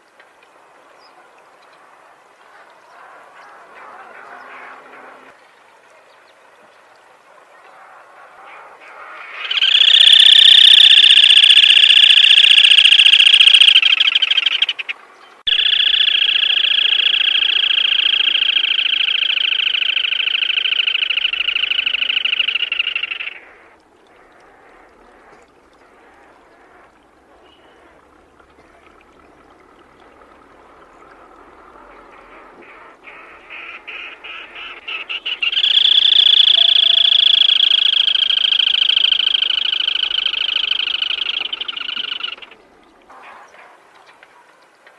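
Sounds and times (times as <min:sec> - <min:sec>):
bird calling in fast trills: 0:09.2 - 0:25.4, 0:31.8 - 0:42.6.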